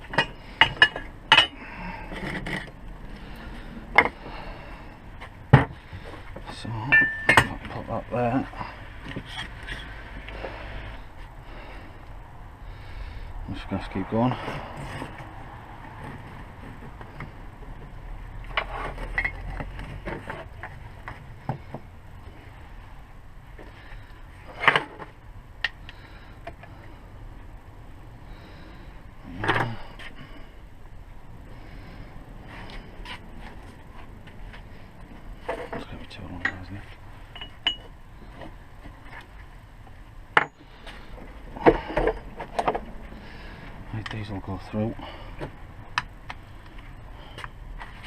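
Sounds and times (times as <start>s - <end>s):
low steady hum: 0.0s - 48.0s
metal tools scraping: 6.8s - 7.6s
metal tools knocking: 6.8s - 7.7s, 36.4s - 36.7s, 37.3s - 37.9s, 40.4s - 40.7s.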